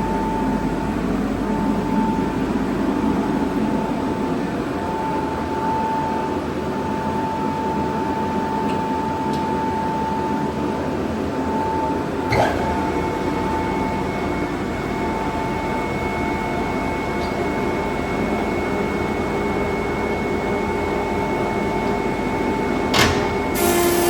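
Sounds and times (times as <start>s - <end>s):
planer thicknesser running: 12.3s - 24.0s.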